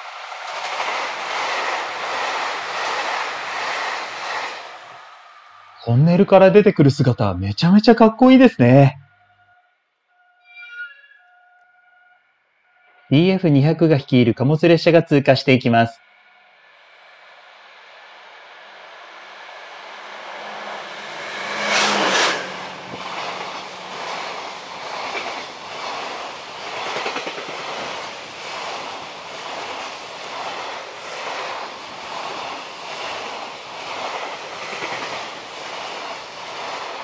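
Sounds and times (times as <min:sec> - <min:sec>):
diesel locomotive engine drone: 0:00.0 - 0:07.4, 0:16.0 - 0:37.0
wheels clacking over rail joints: 0:20.3 - 0:37.0.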